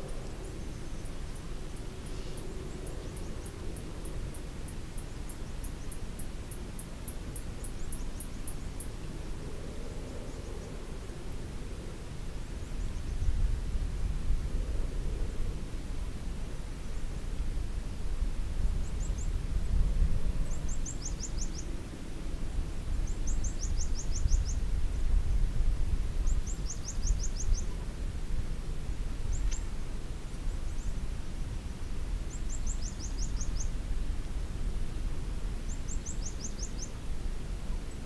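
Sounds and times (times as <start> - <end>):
small bird chirping: 20.4 - 21.7, 23.1 - 24.6, 26.2 - 27.7, 29.3 - 29.7, 32.3 - 33.8, 35.7 - 37.0.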